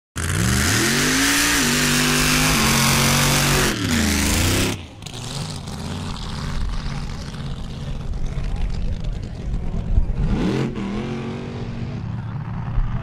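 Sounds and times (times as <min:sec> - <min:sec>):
car engine revving: 0:00.2 - 0:13.0
low engine rumble: 0:02.2 - 0:13.0.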